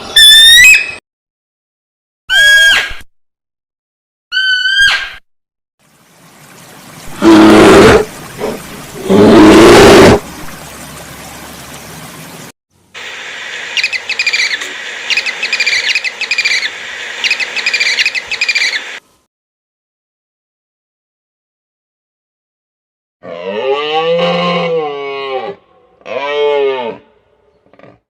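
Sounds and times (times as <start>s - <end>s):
high bird chirps: 13.8s - 18.9s.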